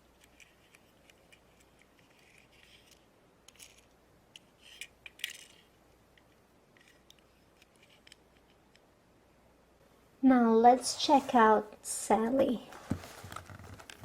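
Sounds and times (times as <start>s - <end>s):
hands rustling: 12.7s - 14.0s.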